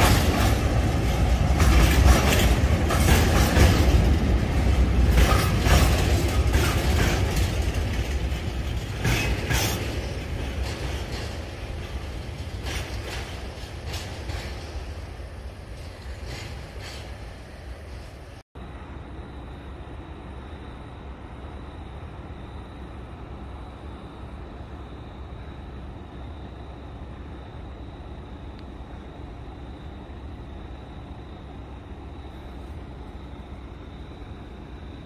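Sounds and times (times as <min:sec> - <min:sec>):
train wheels clacking over joints: 0:00.0 - 0:18.2
train rumble: 0:00.0 - 0:35.0.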